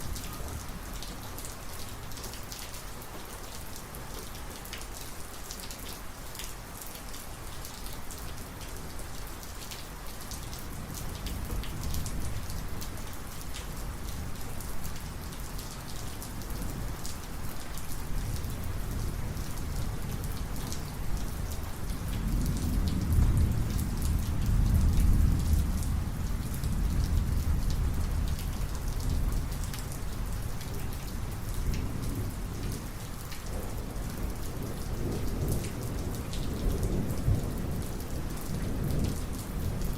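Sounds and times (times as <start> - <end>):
heavy rain: 0.0 - 39.9
rolling thunder: 22.1 - 29.6, 33.5 - 39.9.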